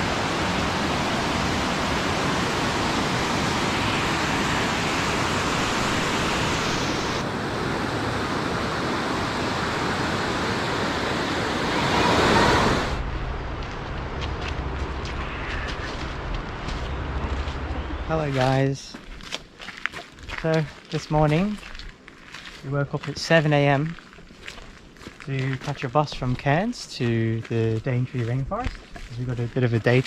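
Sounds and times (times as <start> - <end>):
flowing water rushing: 0.0 - 13.2.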